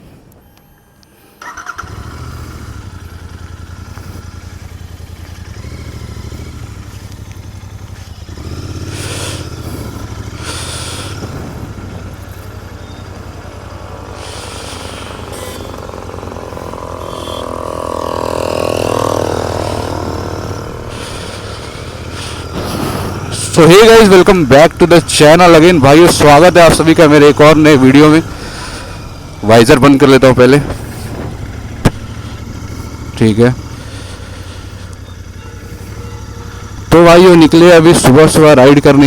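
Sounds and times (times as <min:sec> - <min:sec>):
motorcycle engine starting and rumbling: 0:00.4 - 0:39.0.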